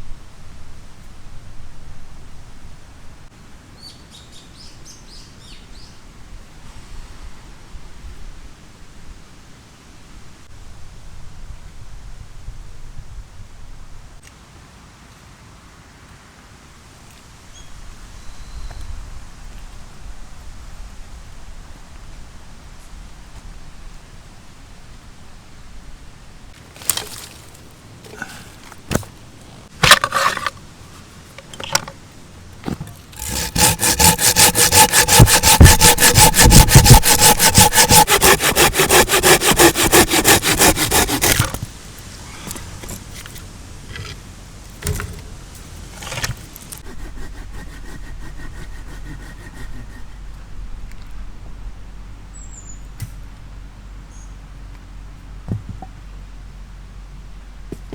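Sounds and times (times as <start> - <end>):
hand saw cutting wood: 29.8 - 30.6, 32.7 - 43.5, 45.9 - 50.2.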